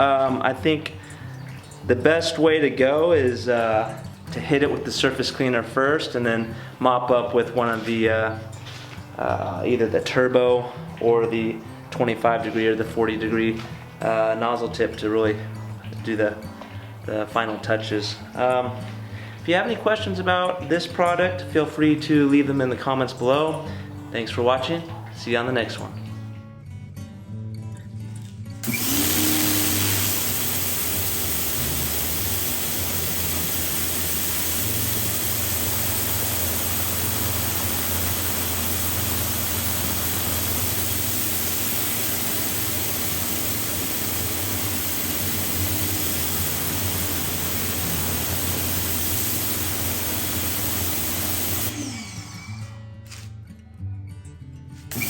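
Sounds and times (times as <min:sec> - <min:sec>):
pressure washer spray hiss: 0:28.6 - 0:52.2
motor and pump hum: 0:28.6 - 0:52.6.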